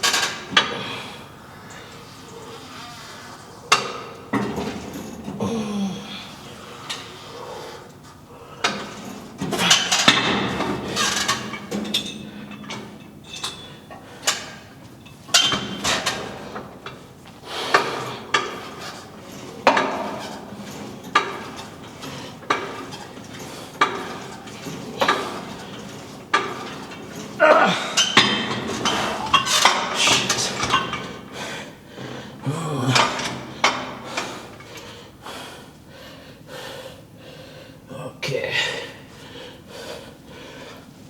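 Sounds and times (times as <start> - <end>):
weight stack plates clanking: 8.7 - 34.9.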